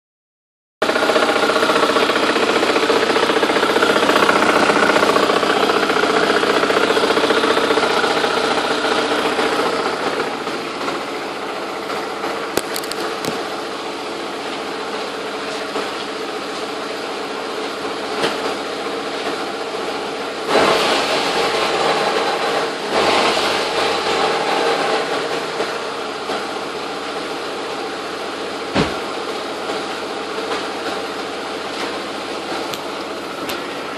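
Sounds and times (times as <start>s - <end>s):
engine knocks: 0.8s - 13.8s
engine clicking: 0.8s - 16.2s
car engine idling: 0.8s - 33.9s.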